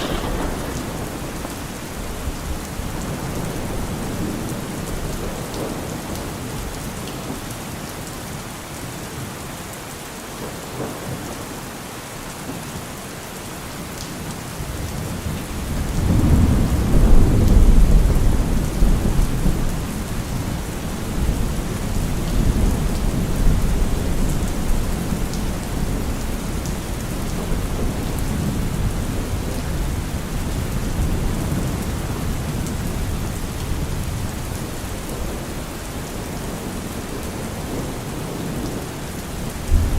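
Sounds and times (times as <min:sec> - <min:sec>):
thunder rolling: 0:00.0 - 0:05.8, 0:39.6 - 0:39.9
rain falling on trees: 0:00.0 - 0:39.9.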